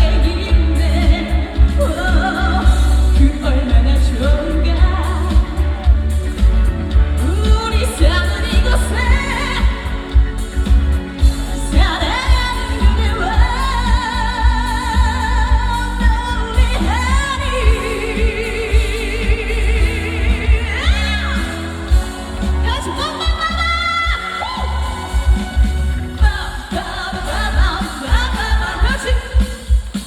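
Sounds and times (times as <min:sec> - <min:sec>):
backing track with heavy bass: 0:00.0 - 0:30.0
woman singing with vibrato: 0:00.0 - 0:30.0.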